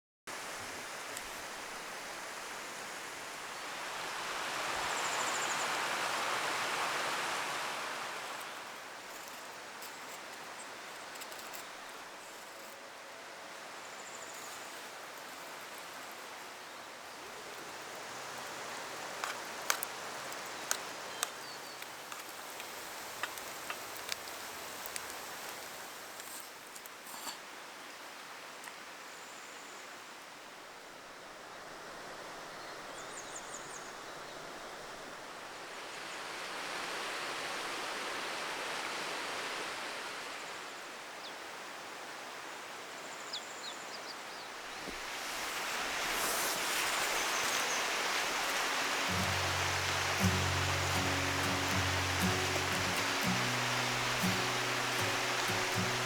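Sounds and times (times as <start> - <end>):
river water rushing: 0.3 - 10.9, 44.9 - 56.0.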